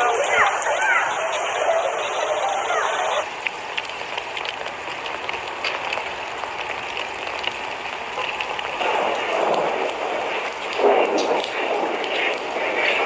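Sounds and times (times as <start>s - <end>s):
rain hissing on standing water: 0.0s - 13.0s
small ticks: 3.2s - 13.0s.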